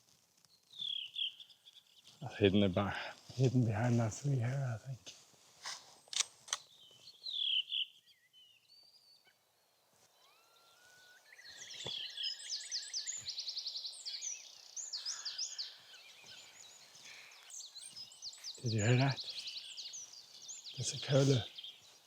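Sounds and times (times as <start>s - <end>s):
songbirds singing: 0.5s - 4.9s, 5.9s - 22.0s
rising bird whistle: 10.2s - 11.3s.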